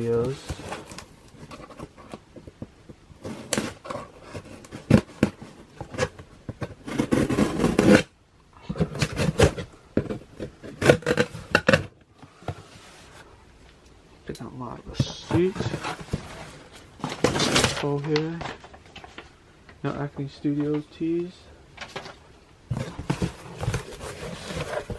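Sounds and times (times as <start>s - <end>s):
noisy packaging rustling: 0.0s - 13.8s, 14.7s - 24.9s
packaging scrapes and clicks: 3.2s - 13.2s, 15.0s - 19.2s, 21.8s - 24.9s.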